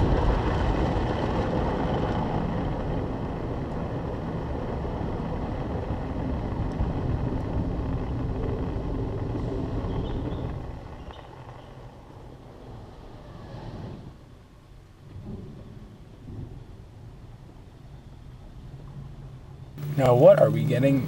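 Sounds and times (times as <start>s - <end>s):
car wash machine rumble: 19.8s - 21.0s.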